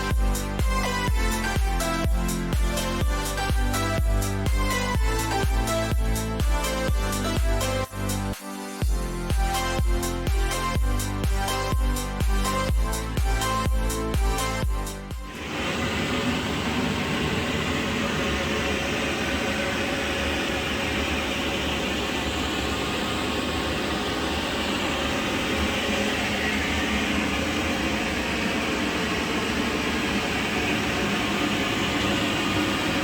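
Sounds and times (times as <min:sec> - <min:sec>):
machine motor running: 0:15.2 - 0:33.0.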